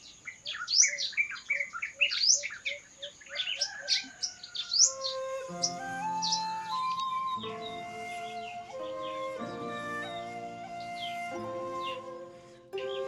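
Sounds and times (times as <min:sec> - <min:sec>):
birds chirping: 0:00.0 - 0:13.0
music: 0:05.0 - 0:13.0
low repeating bird note: 0:05.1 - 0:13.0.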